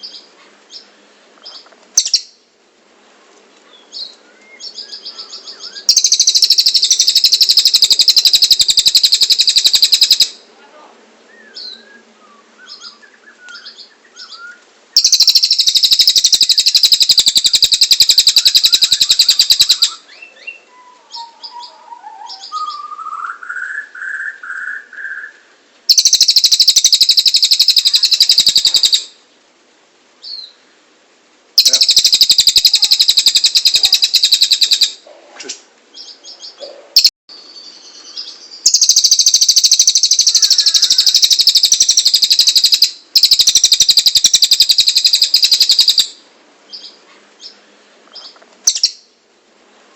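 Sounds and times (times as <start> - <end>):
bird chirps: 0.0 - 2.4, 3.7 - 10.4, 11.3 - 29.2, 31.6 - 35.0, 35.9 - 49.2
rising warbled bird phrase: 4.2 - 10.5, 11.3 - 29.1, 31.6 - 35.1, 36.4 - 46.0
songbird rapid high trills: 4.7 - 10.4, 15.0 - 23.2, 25.9 - 29.2, 31.6 - 35.1, 37.0 - 46.2.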